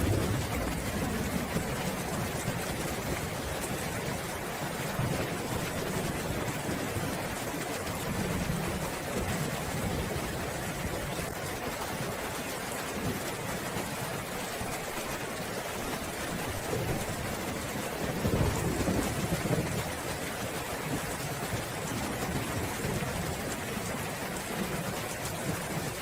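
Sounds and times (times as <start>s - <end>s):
rumbling thunder: 0.0s - 3.6s, 18.0s - 20.0s
heavy rain: 0.0s - 26.0s.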